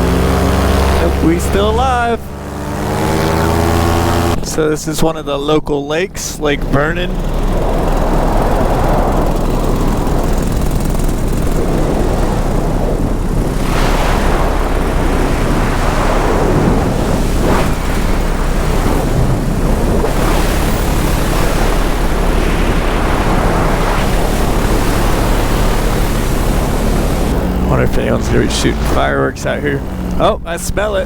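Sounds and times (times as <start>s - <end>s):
paramotor engine and propeller: 0.0s - 31.0s
wind rushing over microphone: 6.5s - 30.2s.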